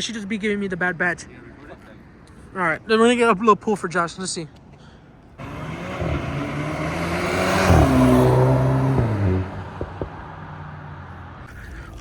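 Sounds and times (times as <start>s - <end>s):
loud car exhaust passing: 5.4s - 11.5s.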